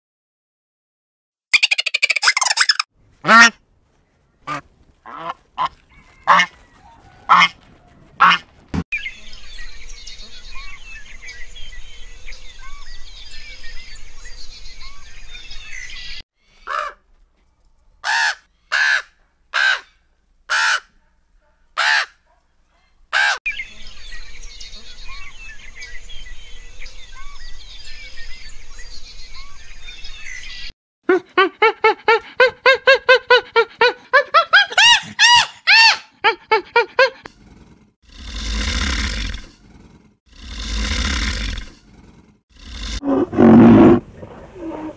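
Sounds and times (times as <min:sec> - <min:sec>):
birdsong chirps: 0:04.0 - 0:18.8, 0:21.2 - 0:30.7
loud bird calls: 0:09.0 - 0:17.0
chimpanzee pant-hoot calls: 0:31.1 - 0:37.3.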